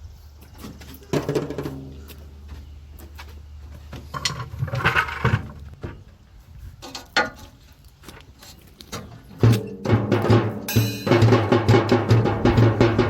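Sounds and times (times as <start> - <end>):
music with drums: 9.4 - 13.0
low hum: 12.0 - 13.0.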